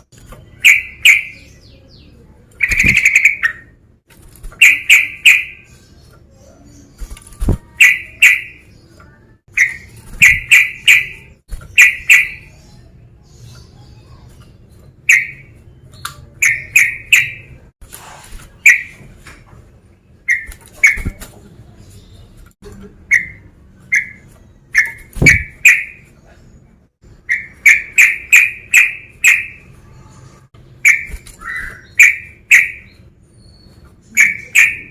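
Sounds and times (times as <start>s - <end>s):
bulbul calling: 0.5s - 1.6s, 2.6s - 3.8s, 4.6s - 5.8s, 7.4s - 8.7s, 9.5s - 12.6s, 16.2s - 17.6s, 23.1s - 26.1s, 27.2s - 29.7s, 30.8s - 33.1s, 34.0s - 34.9s.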